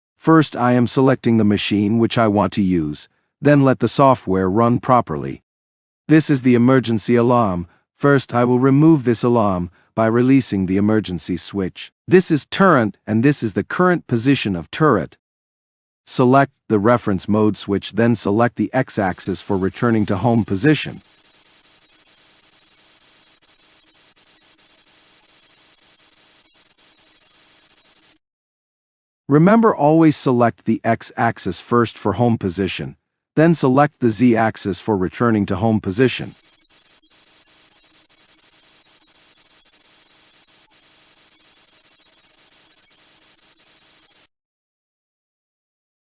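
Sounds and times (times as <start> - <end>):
steady recording hiss: 19.0 - 21.7
static hiss: 19.0 - 28.2, 36.0 - 44.3.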